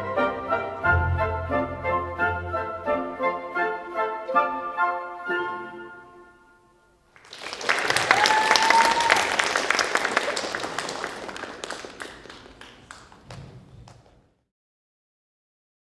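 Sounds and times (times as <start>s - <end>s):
audience applause: 7.1s - 14.2s
person whooping: 7.8s - 10.5s.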